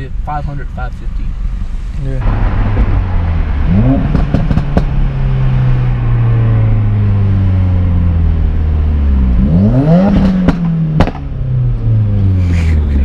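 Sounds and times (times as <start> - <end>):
car engine revving: 0.0 - 13.0
exhaust pops: 2.2 - 5.2, 10.0 - 11.3.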